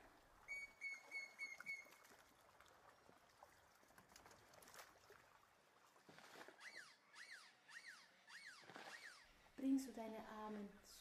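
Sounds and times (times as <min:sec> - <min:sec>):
faint birdsong: 0:06.6 - 0:10.1.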